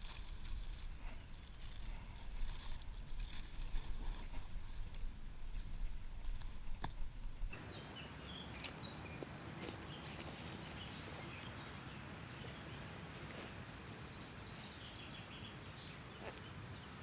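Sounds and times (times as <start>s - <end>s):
birds chirping: 7.5s - 17.0s.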